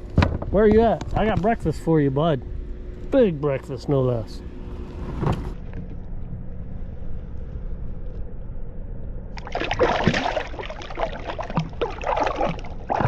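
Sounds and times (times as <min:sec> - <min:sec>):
low steady rumble: 0:00.0 - 0:13.0
water splashing beside kayak: 0:09.4 - 0:13.0.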